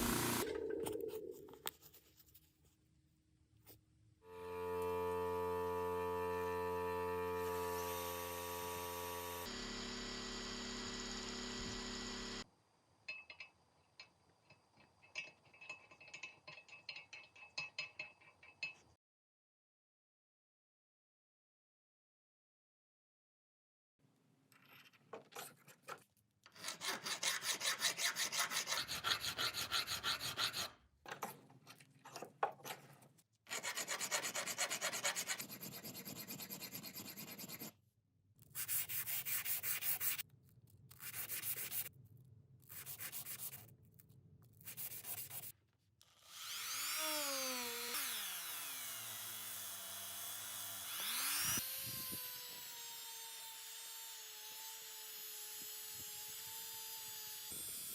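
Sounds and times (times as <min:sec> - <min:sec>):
small power tool whining: 0:00.0 - 0:01.3, 0:04.3 - 0:12.5, 0:46.0 - 0:57.9.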